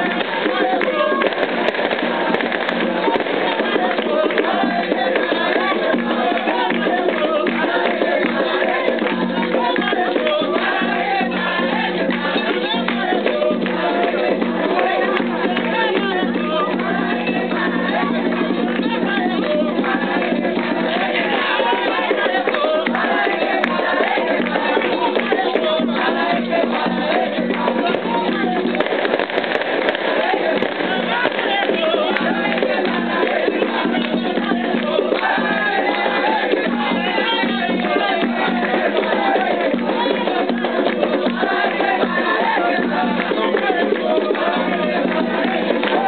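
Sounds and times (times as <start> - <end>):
percussion: 0.0 - 46.0
voices singing a chant: 0.0 - 46.0.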